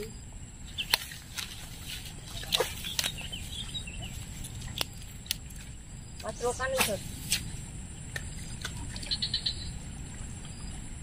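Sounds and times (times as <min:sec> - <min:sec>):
low steady rumble: 0:00.0 - 0:11.0
faint bird chirps: 0:09.0 - 0:09.8.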